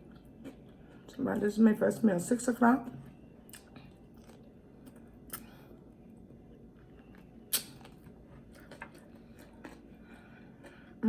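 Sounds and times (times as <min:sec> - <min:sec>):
quiet eating sounds: 0:00.0 - 0:11.0.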